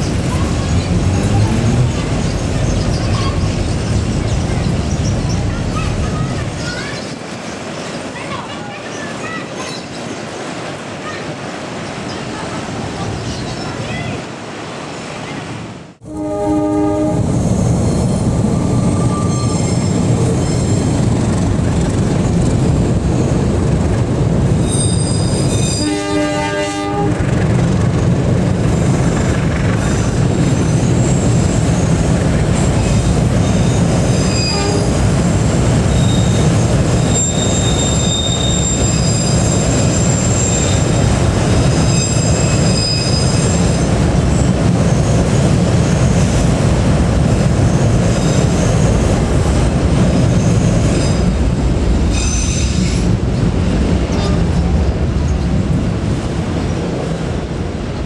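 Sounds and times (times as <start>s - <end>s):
train wagons rumbling on rails: 0.0s - 58.0s
train horn: 16.0s - 17.4s, 25.6s - 27.2s, 34.2s - 35.0s, 54.1s - 54.6s
high wheel squeal: 17.2s - 21.0s, 24.6s - 26.1s, 32.6s - 43.9s, 52.1s - 53.1s.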